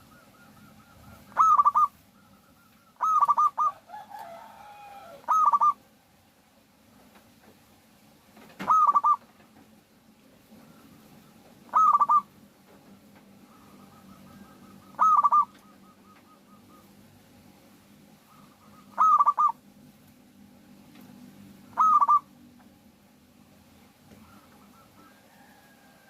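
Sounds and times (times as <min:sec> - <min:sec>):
dove cooing: 0:00.0 - 0:05.8, 0:08.6 - 0:09.3, 0:10.5 - 0:12.4, 0:13.4 - 0:17.2, 0:18.2 - 0:19.6, 0:21.6 - 0:22.4, 0:24.1 - 0:26.0
faint falling bird call: 0:08.6 - 0:09.3.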